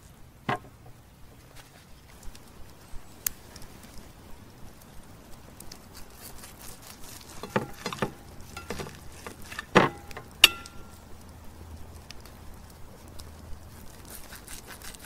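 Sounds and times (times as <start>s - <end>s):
cutlery clinking on ceramic plate: 9.6s - 10.9s
plate ringing: 9.8s - 11.0s.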